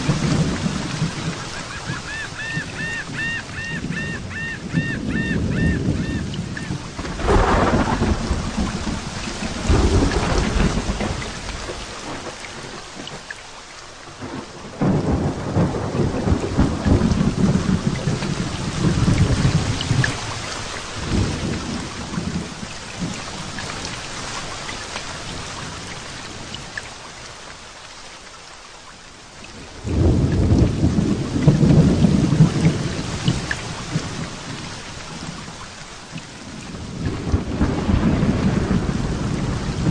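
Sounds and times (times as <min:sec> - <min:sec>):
thunder rolling: 0:00.0 - 0:12.8, 0:14.2 - 0:20.3, 0:29.8 - 0:34.6, 0:36.5 - 0:39.9
heavy rain falling: 0:00.0 - 0:39.9.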